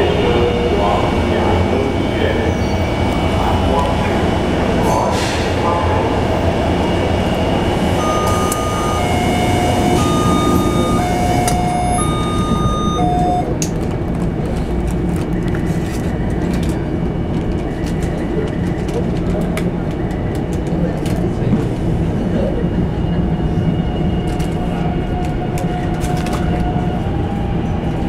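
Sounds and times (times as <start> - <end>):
train rumbling: 0.0 - 28.0
two-note electronic chime: 8.0 - 13.5.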